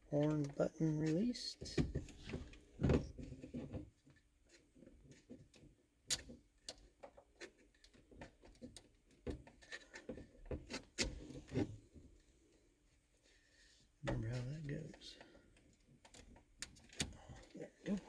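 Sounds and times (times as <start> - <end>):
sharp plastic clacks: 4.5 - 11.7.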